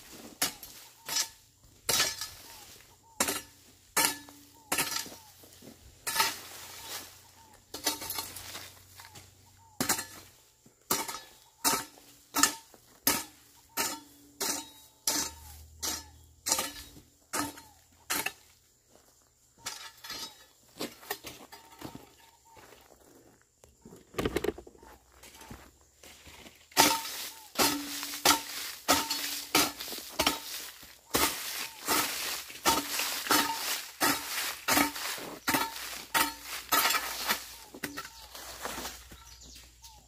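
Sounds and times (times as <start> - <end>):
hoe chopping into ground: 7.7 - 18.5, 26.7 - 40.0.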